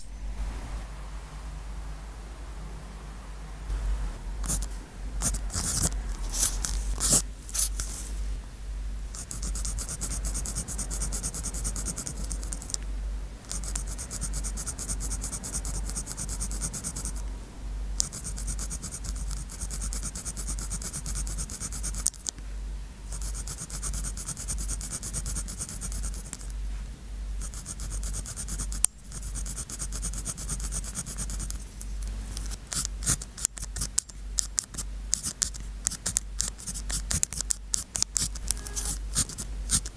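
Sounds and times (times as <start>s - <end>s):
pen scratching on paper: 4.4s - 7.9s, 9.2s - 12.8s, 13.5s - 17.2s, 18.0s - 22.3s, 23.1s - 26.5s, 27.4s - 31.8s, 32.4s - 39.9s
pen ticks: 9.2s - 12.8s, 13.5s - 15.0s, 18.0s - 22.3s, 32.4s - 39.9s.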